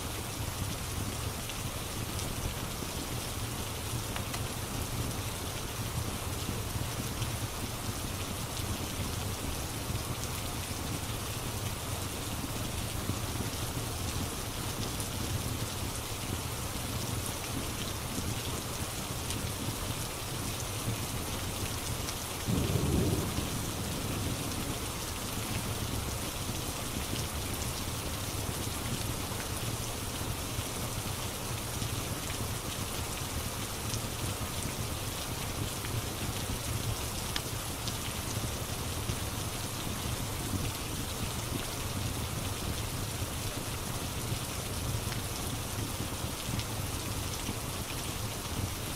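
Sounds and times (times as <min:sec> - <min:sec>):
steady rain falling: 0:00.0 - 0:48.9
low rumble of thunder: 0:22.5 - 0:26.3.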